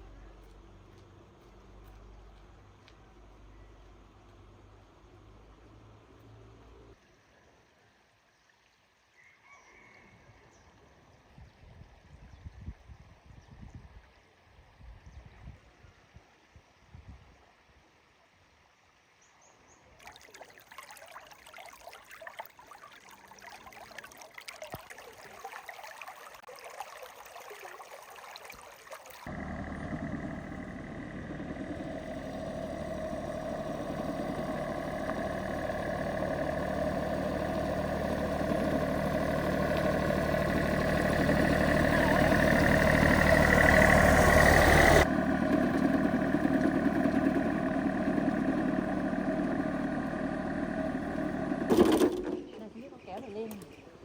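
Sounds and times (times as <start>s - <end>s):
vehicle engine running: 0.0s - 7.0s, 29.3s - 52.5s.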